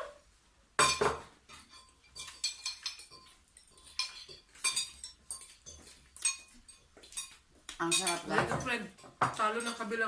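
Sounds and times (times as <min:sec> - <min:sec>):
fork clinking on plate: 0:00.8 - 0:08.4.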